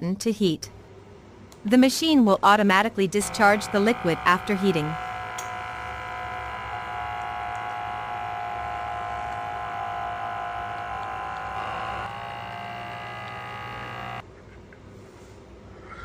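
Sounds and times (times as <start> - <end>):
espresso machine pump buzzing: 3.0 - 14.2.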